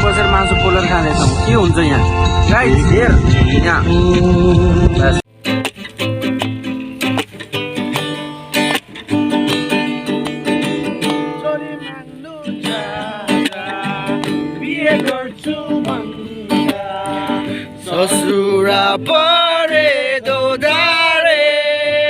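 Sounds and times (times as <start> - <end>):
acoustic guitar strumming chords: 0.0 - 22.0
person singing: 11.3 - 22.0.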